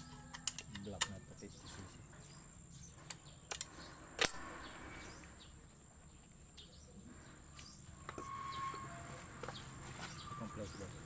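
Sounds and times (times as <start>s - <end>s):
birds chirping: 0.0s - 11.0s
sharp clicks: 3.0s - 4.6s.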